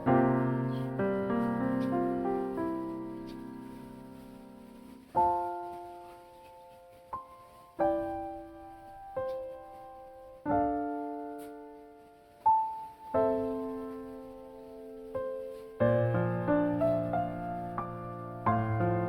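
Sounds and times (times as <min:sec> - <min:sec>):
soft solo piano: 0:00.0 - 0:19.0.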